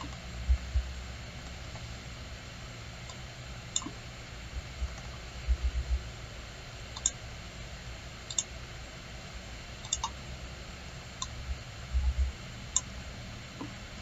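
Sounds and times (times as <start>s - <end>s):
soft low thumps: 0.4s - 1.0s, 4.6s - 6.1s, 11.5s - 12.4s
computer mouse clicking: 3.1s - 4.0s, 6.9s - 7.2s, 8.3s - 8.5s, 9.8s - 10.2s.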